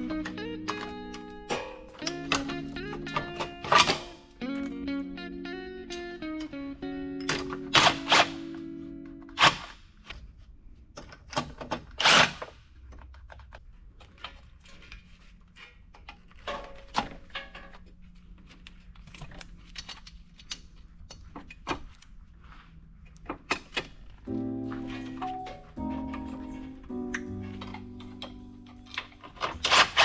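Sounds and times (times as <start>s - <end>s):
tools and parts clicking and knocking: 0.1s - 4.1s, 11.0s - 18.0s, 18.6s - 22.1s, 23.1s - 24.2s, 27.1s - 30.0s.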